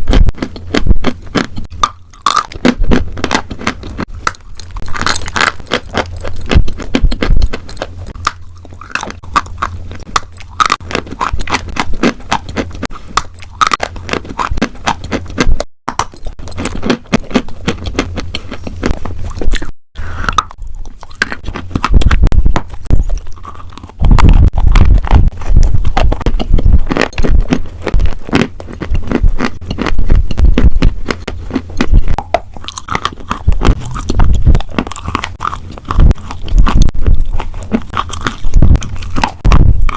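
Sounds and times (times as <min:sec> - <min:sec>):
chewing crunchy food: 0:00.0 - 0:39.9
mouth clicks: 0:19.4 - 0:20.6.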